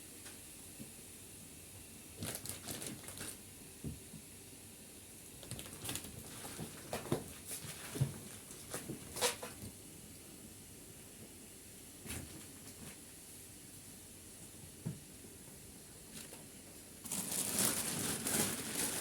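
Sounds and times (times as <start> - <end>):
faint steady hiss: 0.0 - 19.0
handling rustles and taps: 5.4 - 9.8.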